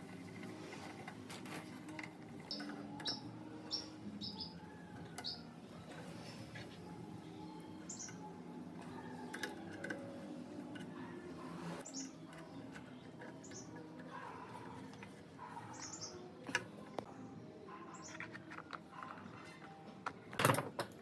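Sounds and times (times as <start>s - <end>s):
small birds chirping: 2.2s - 18.4s.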